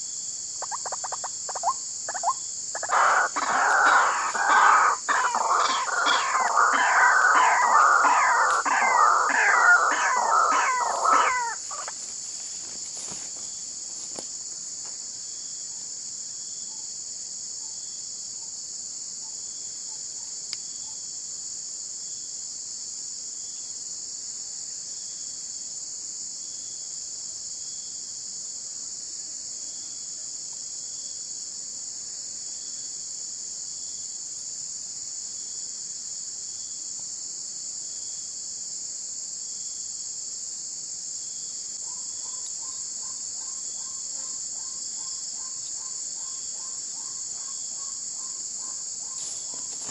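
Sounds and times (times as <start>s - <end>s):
crickets chirring: 0.0s - 49.9s
animal calls: 0.6s - 12.1s, 41.8s - 49.9s.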